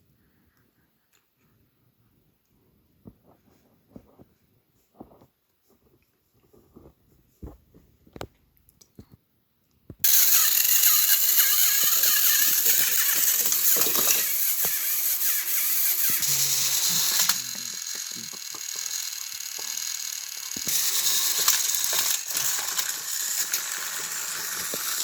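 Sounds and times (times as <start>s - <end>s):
toy train motors whirring: 10.0s - 25.0s.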